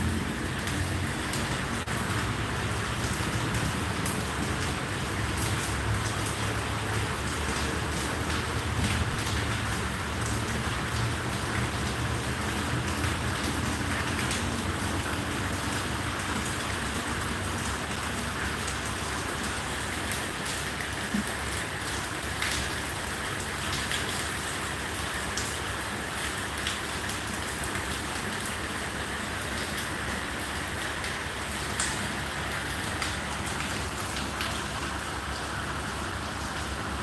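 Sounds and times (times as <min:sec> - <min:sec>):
raindrops ticking: 0:00.0 - 0:21.4
rain falling: 0:00.0 - 0:37.0.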